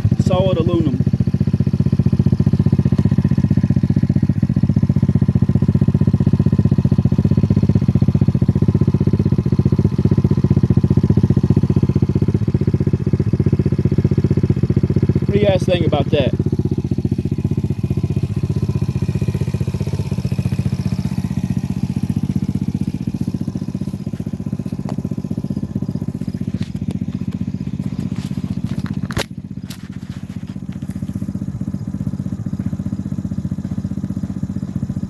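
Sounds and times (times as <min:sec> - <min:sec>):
quad engine idling: 0:00.0 - 0:35.0
sharp click: 0:28.8 - 0:29.8.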